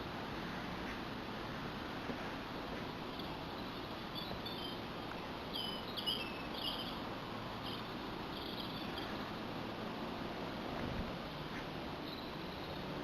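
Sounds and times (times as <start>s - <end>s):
steady background hiss: 0.0s - 13.0s
small bird chirping: 3.2s - 9.4s, 11.6s - 13.0s.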